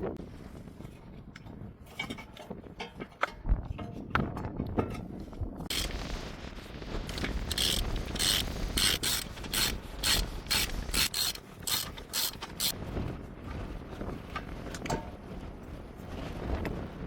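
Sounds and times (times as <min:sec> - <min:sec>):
ratchet wrench clicking: 0:07.5 - 0:12.8.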